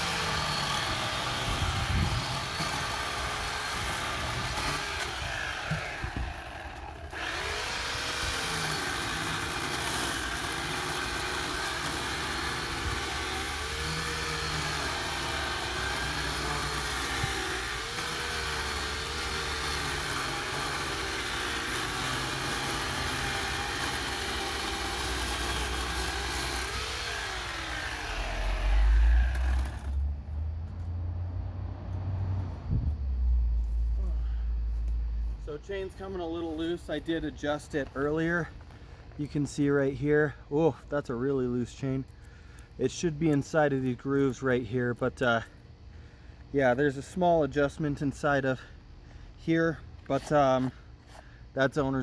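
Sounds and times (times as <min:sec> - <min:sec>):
chainsaw cutting wood: 0:00.0 - 0:30.1.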